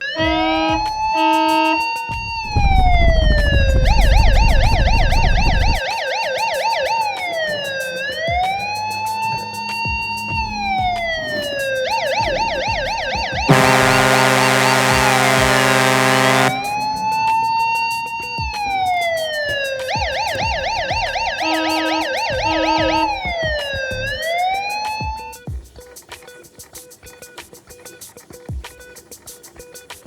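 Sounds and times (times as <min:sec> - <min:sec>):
electronic siren wailing and yelping: 0:00.0 - 0:25.4
music with sustained chords: 0:00.0 - 0:28.2
deep rumble: 0:02.2 - 0:05.8.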